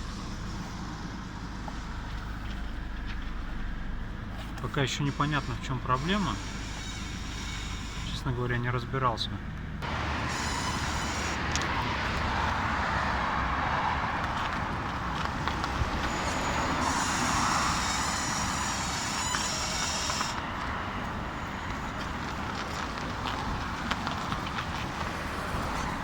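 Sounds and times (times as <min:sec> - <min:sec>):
car running noise: 0:00.0 - 0:26.0
steering creaking: 0:00.0 - 0:26.0
high squeak: 0:05.0 - 0:08.3, 0:10.2 - 0:11.4, 0:16.0 - 0:20.5.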